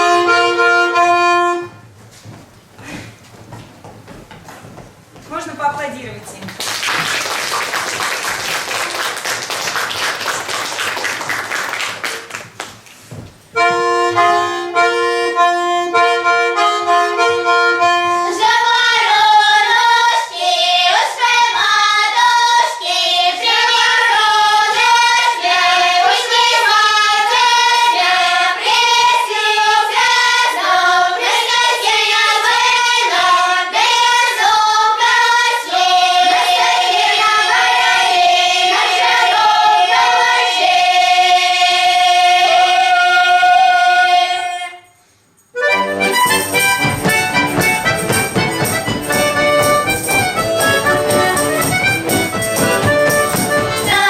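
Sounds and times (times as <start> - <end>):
audience applause: 6.4 - 12.9
sustained instrumental chords: 13.6 - 18.3, 45.6 - 54.0
children singing: 14.2 - 44.8, 50.0 - 54.0.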